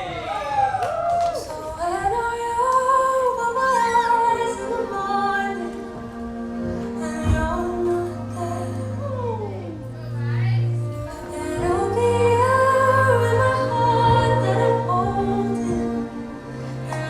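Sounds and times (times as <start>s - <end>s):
woman singing long notes: 1.4s - 17.0s
steady low bass: 5.9s - 16.9s.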